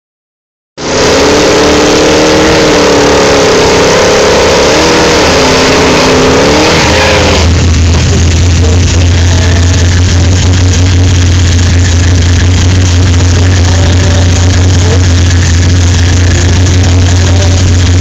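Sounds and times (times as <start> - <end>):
car engines revving hard: 0.8 - 18.0
steady low hum: 4.5 - 18.0.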